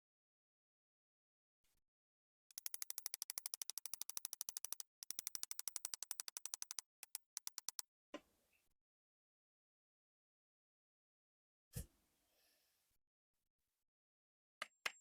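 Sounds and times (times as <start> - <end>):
tool ratcheting: 2.5 - 7.8.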